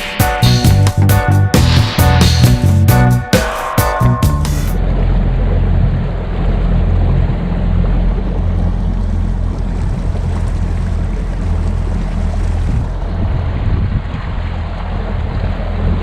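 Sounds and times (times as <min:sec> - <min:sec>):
boat motor humming: 0:00.0 - 0:16.0
wind noise on microphone: 0:11.8 - 0:16.0.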